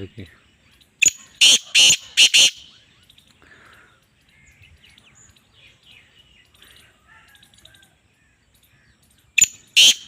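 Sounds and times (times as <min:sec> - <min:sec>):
short whistled bird calls: 0:01.0 - 0:03.1.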